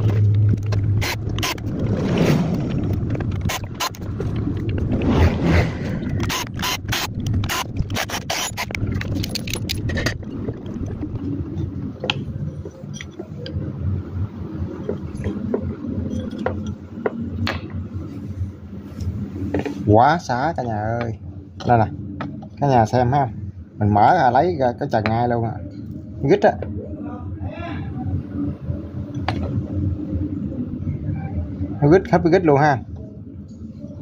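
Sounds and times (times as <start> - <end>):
steady low hum: 0.0 - 34.0
tools clicking and scraping metal: 6.2 - 10.2.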